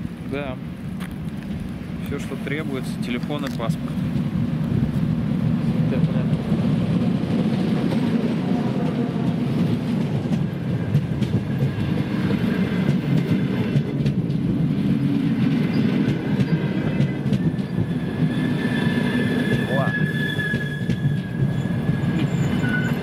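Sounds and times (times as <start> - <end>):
train wheels rumbling past: 0.0 - 23.0
wheels clicking over rail joints: 5.8 - 18.3.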